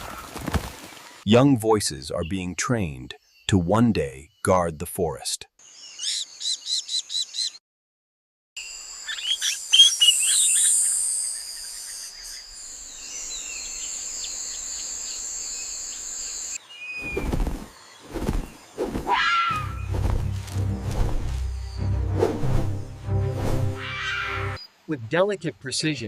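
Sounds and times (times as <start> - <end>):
birds chirping: 0.0 - 7.6, 8.7 - 26.0
bird calls: 1.9 - 7.6, 8.9 - 22.1, 23.8 - 24.8
insect drones: 8.6 - 26.0.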